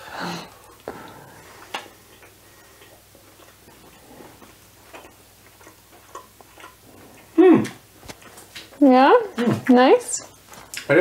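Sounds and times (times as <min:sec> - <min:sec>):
quiet chewing: 0:00.4 - 0:11.0.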